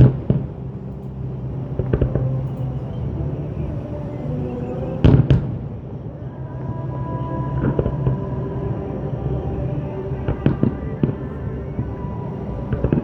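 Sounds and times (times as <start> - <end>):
music: 0.0 - 13.0.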